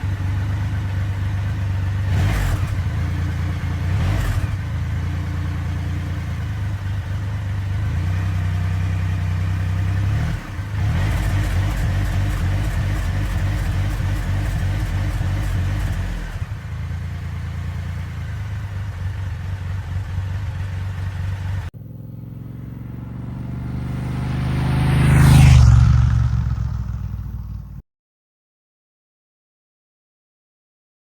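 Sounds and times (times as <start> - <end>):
motorcycle engine running: 0.0 - 27.8
motorcycle passing by: 21.2 - 27.8.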